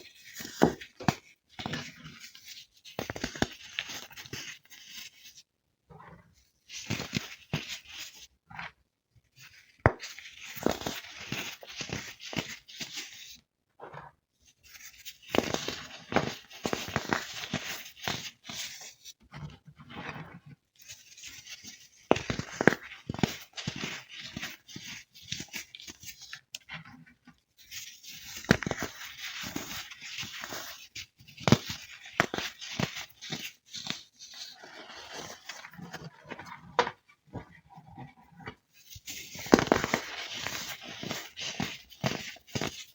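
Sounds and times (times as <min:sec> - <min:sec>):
crunching chunks being crushed: 0:39.3 - 0:42.8.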